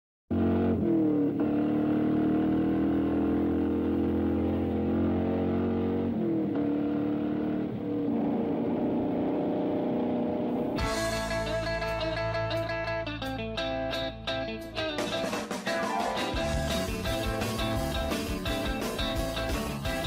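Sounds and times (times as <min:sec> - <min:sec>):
car engine starting and revving: 0:00.3 - 0:11.2.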